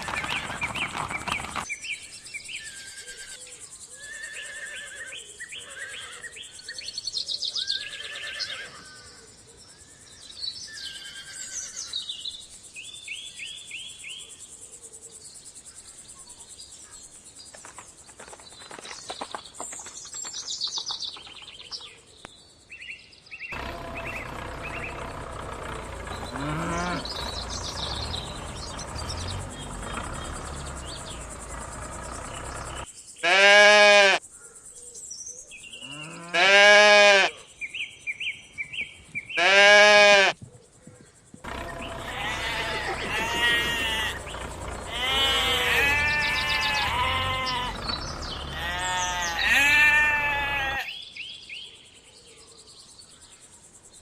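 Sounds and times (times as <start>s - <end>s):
birds chirping: 0.0s - 14.4s, 15.4s - 36.3s, 37.6s - 51.7s
loud drawn-out animal call: 23.6s - 34.2s, 35.8s - 37.4s, 39.4s - 40.4s, 41.4s - 51.0s
sheep or goats bleating: 26.2s - 27.2s, 33.2s - 34.2s, 36.0s - 37.3s, 39.4s - 40.4s, 41.5s - 50.9s.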